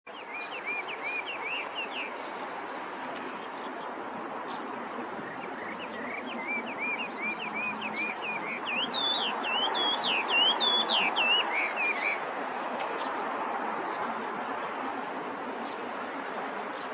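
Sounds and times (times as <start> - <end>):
bird singing whistled notes: 5.3 - 13.0.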